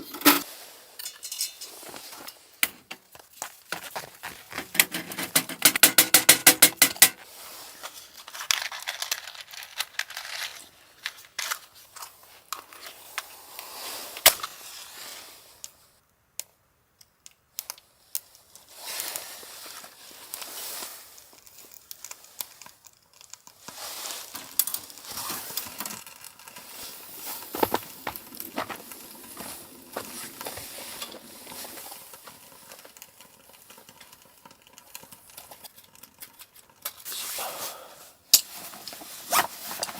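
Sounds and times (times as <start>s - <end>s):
crinkling and rustling: 0.0s - 15.8s, 17.6s - 37.4s, 38.3s - 39.9s
sharp clicks and clinks: 4.6s - 7.2s.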